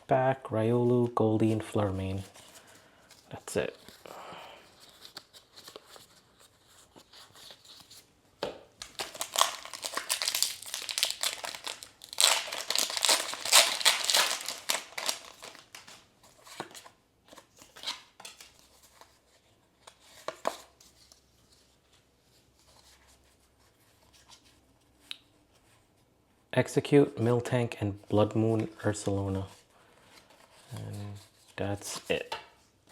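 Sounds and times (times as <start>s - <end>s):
cards clicking and rustling: 7.3s - 19.1s
foil wrapper tearing and crinkling: 8.8s - 16.0s.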